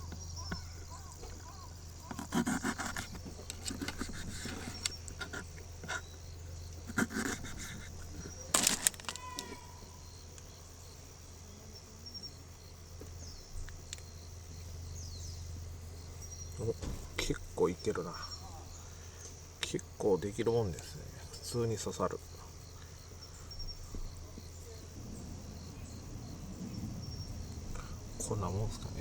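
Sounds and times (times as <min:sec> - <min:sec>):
insects trilling: 0:00.0 - 0:29.0
hands tapping and rustling food: 0:07.2 - 0:09.6.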